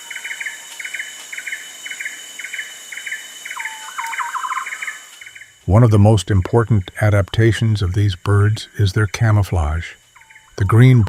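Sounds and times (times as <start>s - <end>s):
high insect drone: 0.0s - 11.0s
short chirping call: 3.5s - 5.0s.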